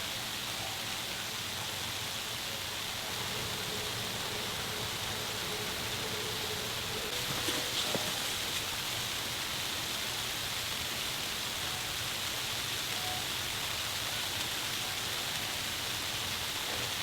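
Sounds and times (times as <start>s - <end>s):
snowstorm hiss: 1.2s - 12.8s.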